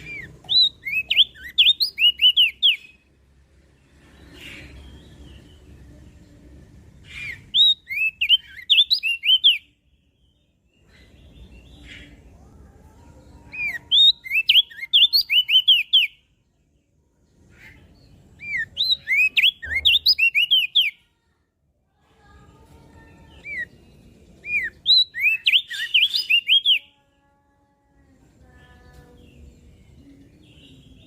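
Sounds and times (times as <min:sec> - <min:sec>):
bird whistling song: 0:00.0 - 0:03.1, 0:07.0 - 0:09.8, 0:13.5 - 0:16.2, 0:17.6 - 0:21.0, 0:23.4 - 0:26.9.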